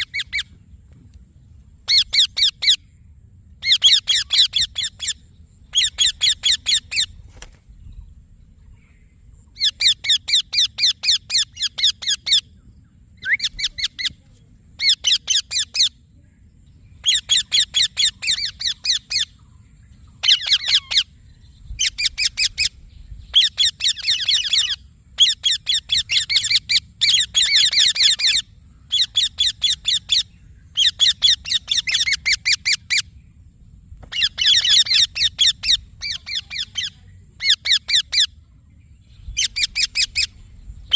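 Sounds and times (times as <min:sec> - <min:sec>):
parakeet shrill chirps: 0:03.6 - 0:07.1, 0:09.6 - 0:12.5, 0:14.8 - 0:15.9, 0:20.2 - 0:21.1, 0:23.3 - 0:33.0, 0:34.1 - 0:38.4, 0:39.4 - 0:40.3.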